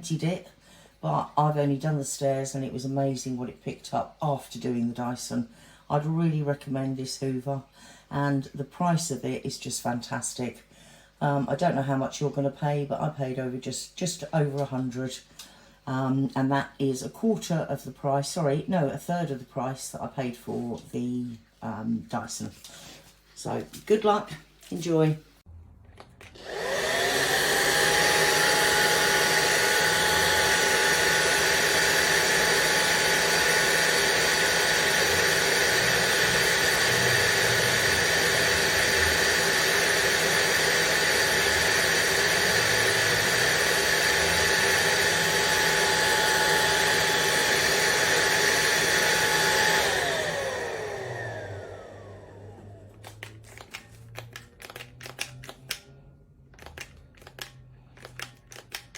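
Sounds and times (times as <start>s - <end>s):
vacuum cleaner motor whining: 26.3s - 55.0s
sharp clicks and taps: 53.0s - 55.8s.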